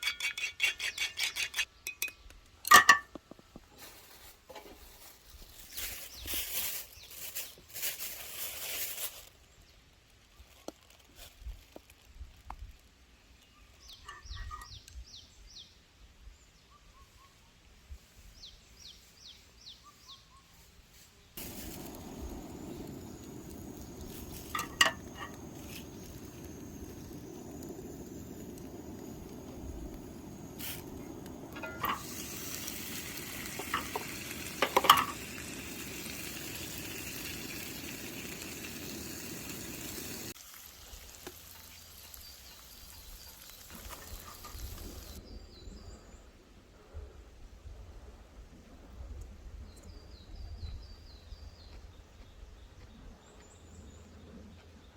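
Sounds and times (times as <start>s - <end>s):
utensil clinking against pan: 0.0s - 3.1s, 31.6s - 32.1s
small birds chirping: 5.0s - 7.8s, 18.2s - 40.4s, 41.3s - 46.2s
food sizzling in a pan: 21.4s - 45.2s.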